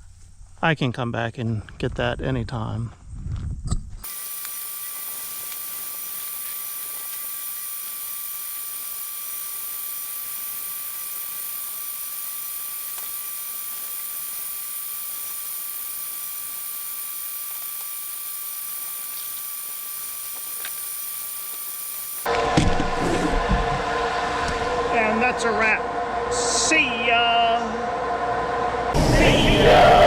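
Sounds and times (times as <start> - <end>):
steady hiss: 4.0 - 22.3
faint high whine tones: 4.0 - 22.4.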